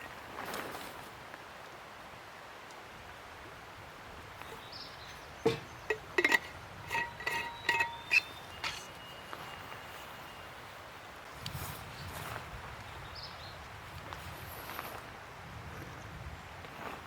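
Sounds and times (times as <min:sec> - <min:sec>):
cookware and utensils clinking: 0:05.4 - 0:09.0.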